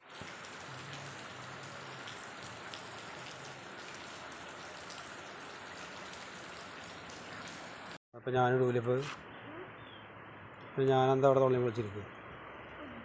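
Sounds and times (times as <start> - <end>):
rain patter: 0.0 - 8.0
faint raindrop ticks: 0.2 - 7.6.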